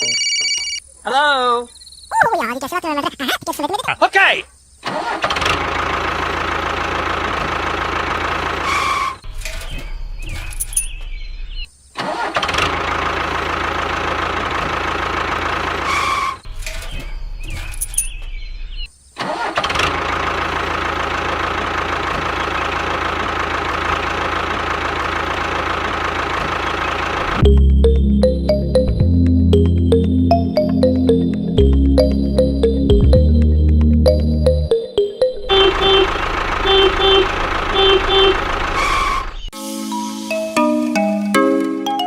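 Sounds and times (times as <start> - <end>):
music: 27.4 - 35.5, 39.5 - 42.0.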